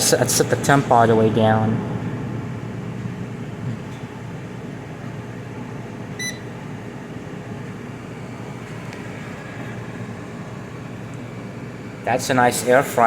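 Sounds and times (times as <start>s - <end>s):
air fryer fan running: 0.0s - 13.0s
short electronic beep: 6.2s - 6.5s.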